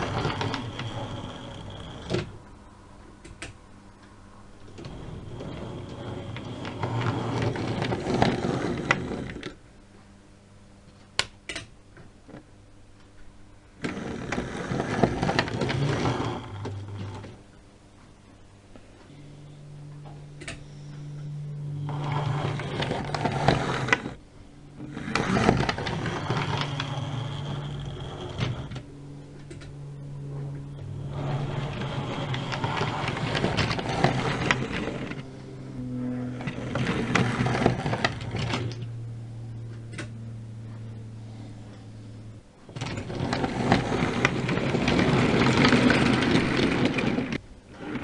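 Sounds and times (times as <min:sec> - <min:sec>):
model train motor hum: 0:00.0 - 0:02.4, 0:04.7 - 0:09.6, 0:13.8 - 0:17.4, 0:21.2 - 0:24.2, 0:24.8 - 0:30.0, 0:30.6 - 0:39.1, 0:42.8 - 0:48.0.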